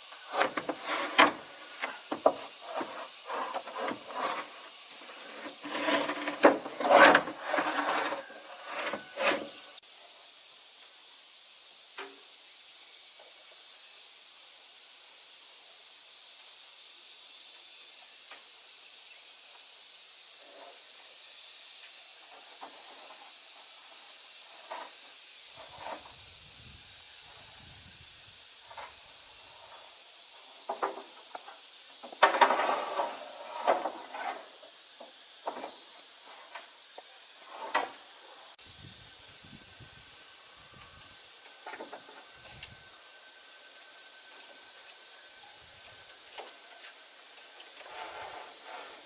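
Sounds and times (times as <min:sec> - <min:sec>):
steady high-pitched hiss: 0:00.0 - 0:49.0.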